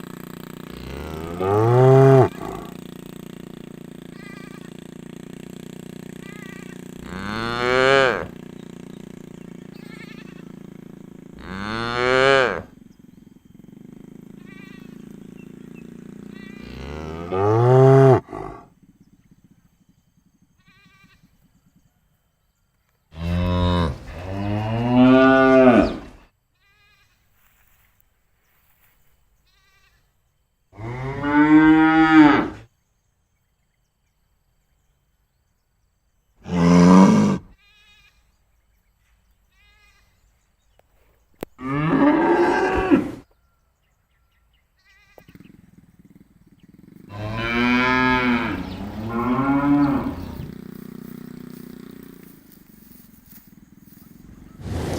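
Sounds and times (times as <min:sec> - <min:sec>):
cattle mooing: 0:00.7 - 0:02.8, 0:06.2 - 0:08.3, 0:11.4 - 0:12.7, 0:16.2 - 0:18.7, 0:23.2 - 0:26.1, 0:36.4 - 0:37.5, 0:41.6 - 0:43.2, 0:47.0 - 0:54.6.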